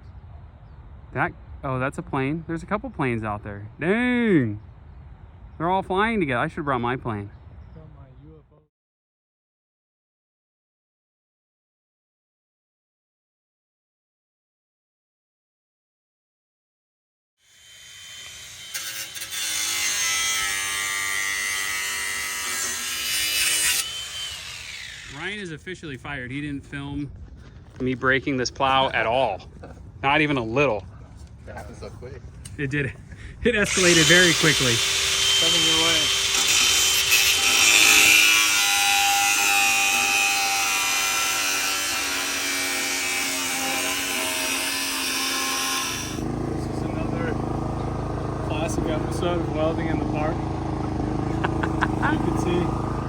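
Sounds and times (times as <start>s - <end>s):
power tool motor whining: 17.5s - 25.3s, 33.7s - 53.0s.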